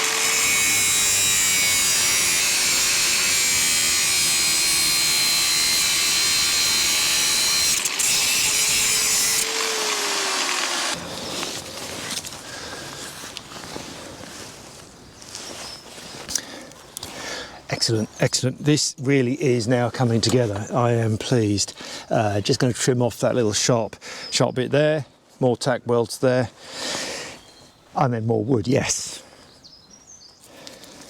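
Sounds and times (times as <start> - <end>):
power tool cutting: 0.0 - 11.0.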